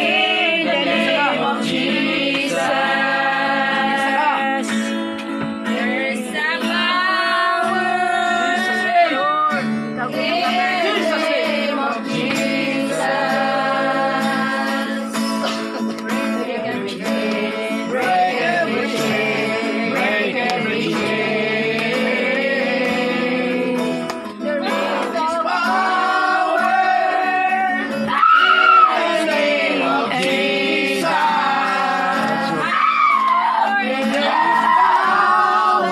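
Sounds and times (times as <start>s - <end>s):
plucked guitar: 0.0s - 35.9s
voices singing: 0.0s - 35.9s.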